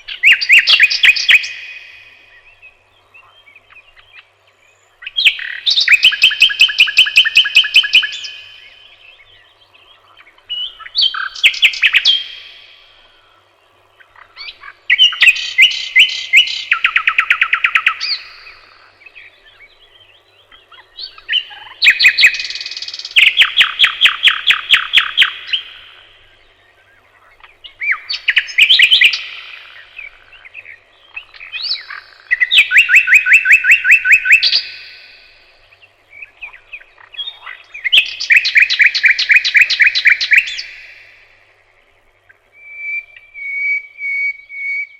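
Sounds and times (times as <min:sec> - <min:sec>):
songbird singing: 0:00.0 - 0:44.9.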